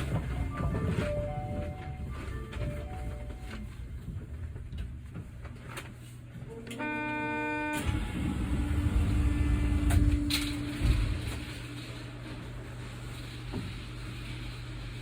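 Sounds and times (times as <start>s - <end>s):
train low rumble: 0.0s - 15.0s
short buzzer tone: 6.8s - 8.0s.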